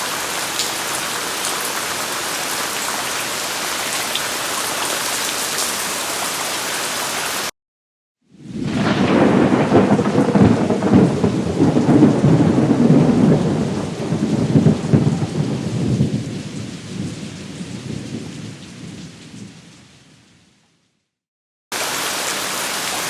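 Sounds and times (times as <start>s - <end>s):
rain: 0.0s - 7.5s, 8.3s - 20.7s, 21.7s - 23.0s
thunder rumbling: 8.4s - 19.6s.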